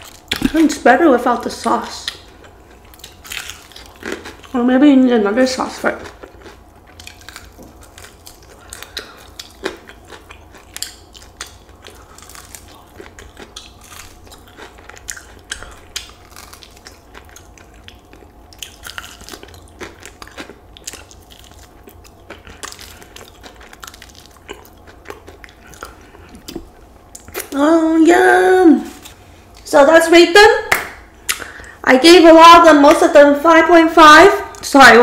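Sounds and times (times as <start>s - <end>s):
person chewing crispy chicken: 2.0s - 4.6s, 5.9s - 27.6s.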